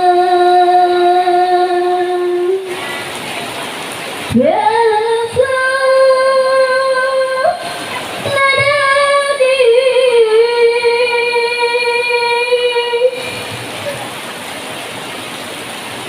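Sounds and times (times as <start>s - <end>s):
person singing long notes: 0.0s - 2.9s, 4.3s - 13.6s.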